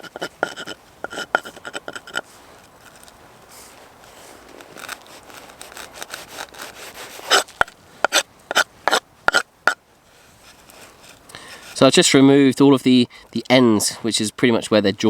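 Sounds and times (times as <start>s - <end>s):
faint handling noise: 0.0s - 9.4s, 10.0s - 12.0s.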